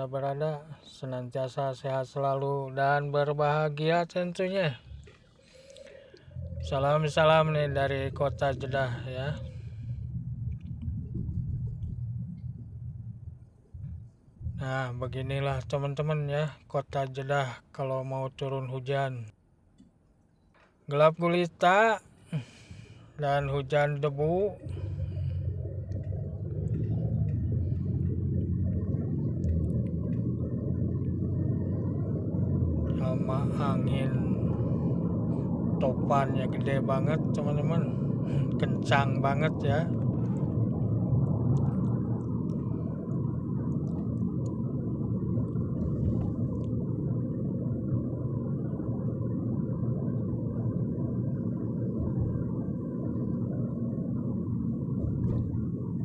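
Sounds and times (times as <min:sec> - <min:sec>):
road and engine rumble: 0:00.0 - 0:56.0
strong wind against car: 0:06.3 - 0:15.5, 0:24.6 - 0:56.0.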